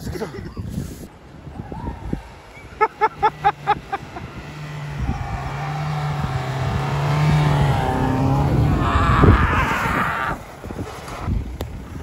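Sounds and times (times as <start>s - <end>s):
wheels churning snow: 0.8s - 12.0s
car engine straining in low gear: 3.0s - 11.3s.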